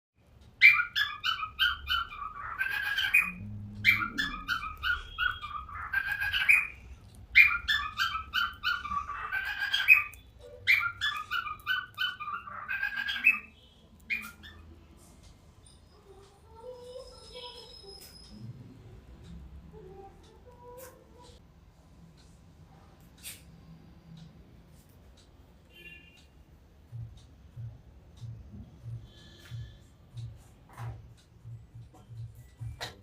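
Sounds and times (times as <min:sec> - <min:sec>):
budgerigar chirping and chattering: 0:00.6 - 0:14.7.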